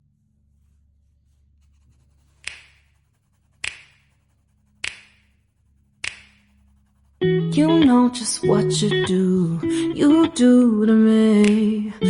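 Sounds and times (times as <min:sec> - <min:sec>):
sharp snapping clicks: 0:02.4 - 0:02.8, 0:04.8 - 0:05.2, 0:06.0 - 0:06.4, 0:11.4 - 0:11.9.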